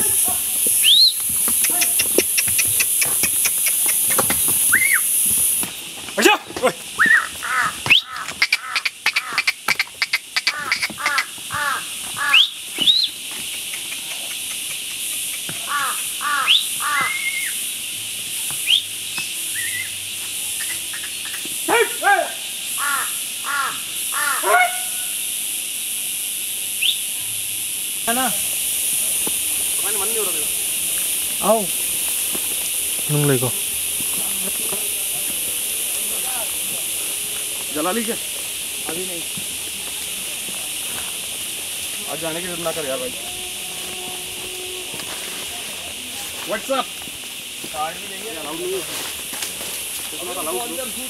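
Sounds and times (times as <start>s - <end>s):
steady high hiss: 0.0s - 51.0s
short rising whistles: 0.8s - 1.2s, 4.7s - 5.1s, 12.3s - 13.2s, 18.6s - 18.9s, 19.5s - 20.0s
patter of sharp clicks: 1.2s - 4.5s, 13.4s - 15.6s
bird cawing harshly: 7.1s - 12.5s, 15.7s - 17.6s, 22.8s - 25.0s.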